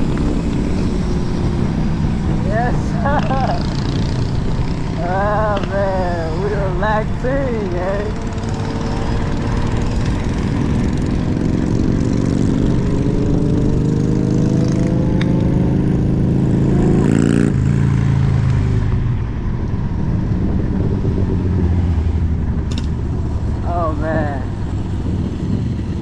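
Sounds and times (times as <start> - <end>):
electric scooter motor whine: 0.0 - 2.5, 3.6 - 14.1
road and wind noise: 0.0 - 26.0.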